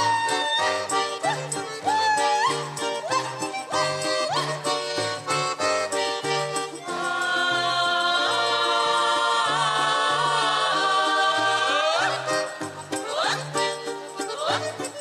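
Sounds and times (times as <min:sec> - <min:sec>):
folk ensemble playing: 0:00.0 - 0:15.0
choir holding a chord: 0:06.9 - 0:13.3.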